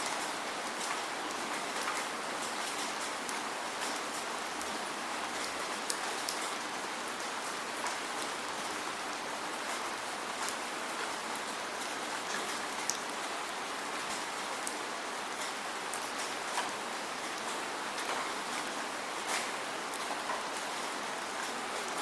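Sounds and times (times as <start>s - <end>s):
raindrops ticking close by: 0.0s - 22.0s
steady rain hiss: 0.0s - 22.0s.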